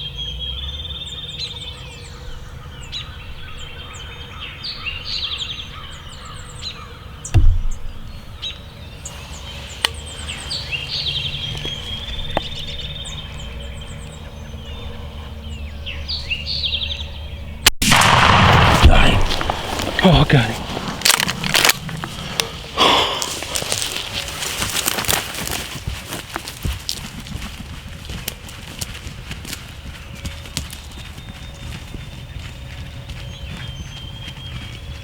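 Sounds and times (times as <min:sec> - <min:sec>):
outdoor background noise: 0:00.0 - 0:35.0
songbirds trilling: 0:00.0 - 0:35.0
dull low thump: 0:07.3 - 0:13.4
loud shotgun blast: 0:17.8 - 0:22.5.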